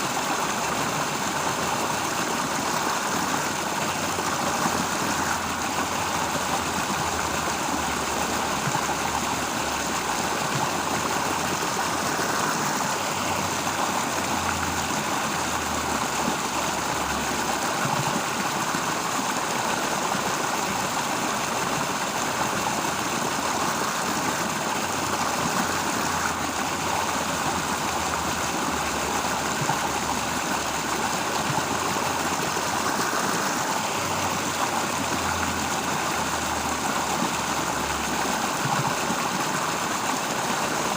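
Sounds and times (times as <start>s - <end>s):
stream rushing: 0.0s - 40.9s.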